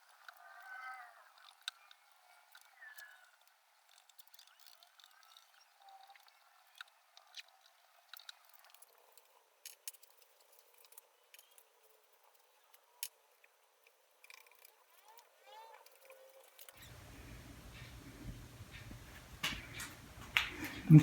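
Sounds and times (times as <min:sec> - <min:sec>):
faint ticks and clicks: 0:00.0 - 0:21.0
soft hiss: 0:16.8 - 0:21.0.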